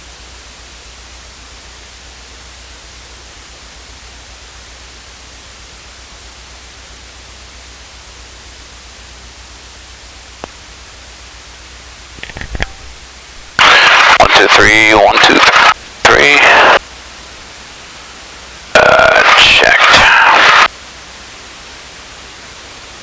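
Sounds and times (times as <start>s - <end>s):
static hiss: 0.4s - 23.0s
low hum: 10.3s - 20.7s.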